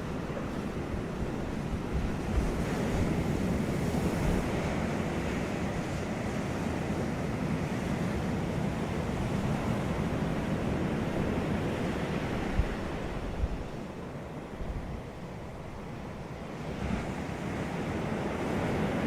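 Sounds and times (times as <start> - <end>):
sea surf washing onto beach: 0.0 - 14.6.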